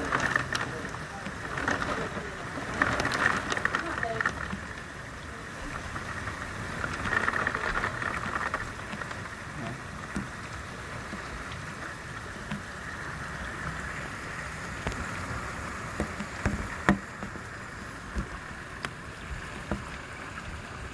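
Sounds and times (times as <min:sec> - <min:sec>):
heavy rain falling: 0:00.0 - 0:20.9
water drip taps: 0:15.9 - 0:20.0.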